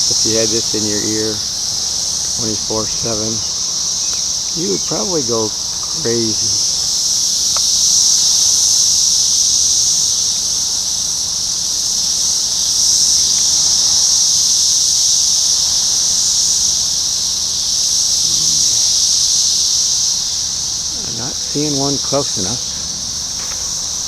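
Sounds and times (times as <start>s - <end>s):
cicadas buzzing: 0.0s - 24.0s.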